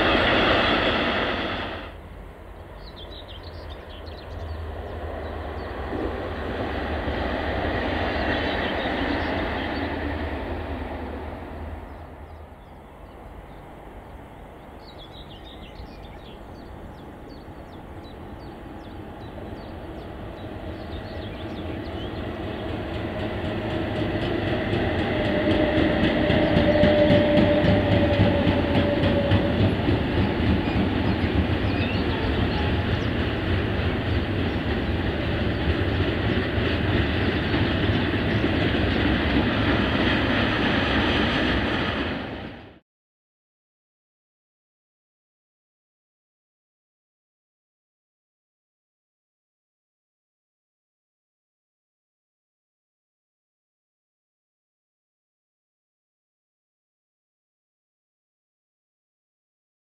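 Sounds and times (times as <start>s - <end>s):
freight train wheels rumbling: 0.0s - 42.8s.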